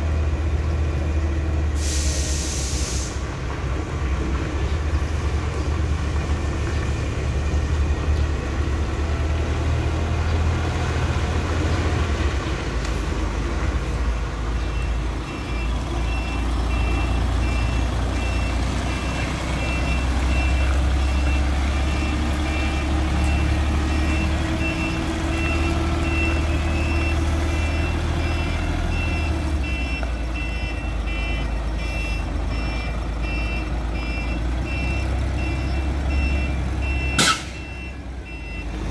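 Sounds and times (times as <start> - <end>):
truck engine rumbling: 0.0 - 38.9
reversing alarm beeps: 14.6 - 38.8.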